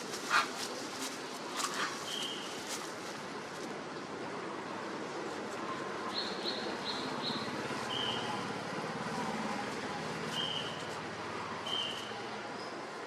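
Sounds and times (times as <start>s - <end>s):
steady background hiss: 0.0s - 13.0s
small bird chirping: 6.1s - 8.4s, 10.3s - 10.9s.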